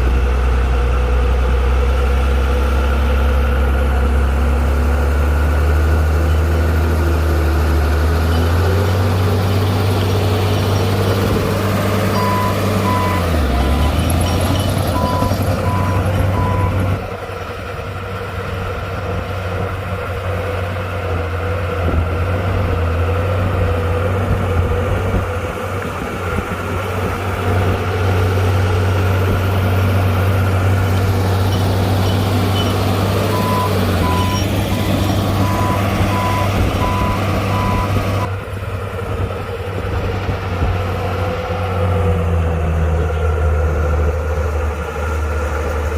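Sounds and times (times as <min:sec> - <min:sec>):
heavy diesel machinery drone: 0:00.0 - 0:45.9
reversing alarm beeping: 0:12.1 - 0:16.9, 0:31.5 - 0:34.5, 0:35.4 - 0:38.0.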